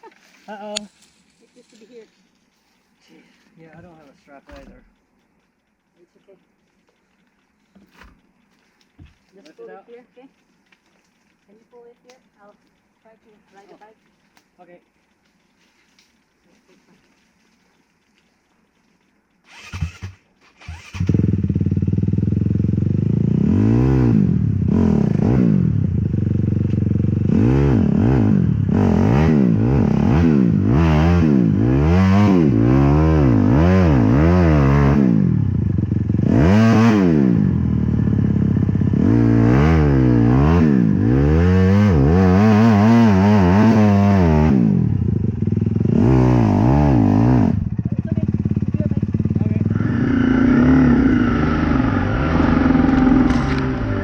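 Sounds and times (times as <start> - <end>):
dirt bike engine revving: 19.4 - 54.0.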